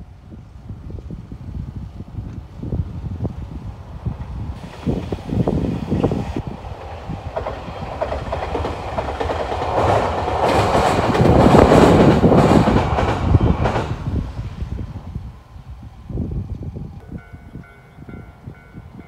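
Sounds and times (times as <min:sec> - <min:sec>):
train wheels clattering: 0:06.0 - 0:14.1.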